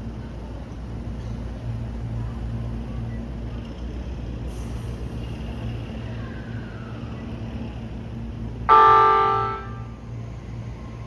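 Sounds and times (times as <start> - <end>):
electric train horn blast: 8.7 - 10.0.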